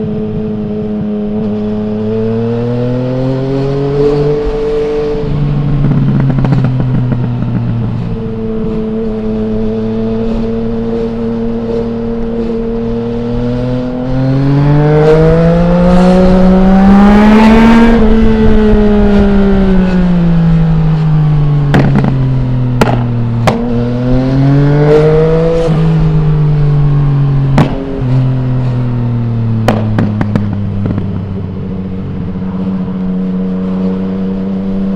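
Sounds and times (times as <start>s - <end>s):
motorcycle engine revving: 0.0s - 34.9s
exhaust cracks: 5.7s - 8.1s, 21.6s - 23.8s, 27.5s - 28.1s, 29.5s - 31.5s.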